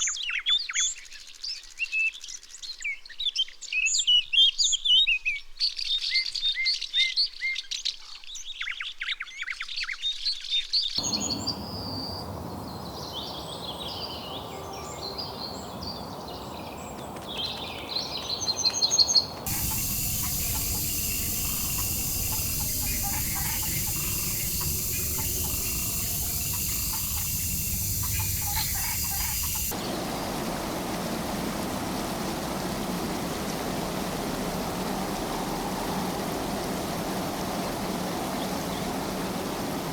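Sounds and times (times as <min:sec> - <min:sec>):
even rushing noise: 0:11.0 - 0:16.3, 0:19.4 - 0:39.9
steady high hiss: 0:11.0 - 0:18.1, 0:19.1 - 0:39.9
forest birds calling and chirping: 0:11.0 - 0:39.9.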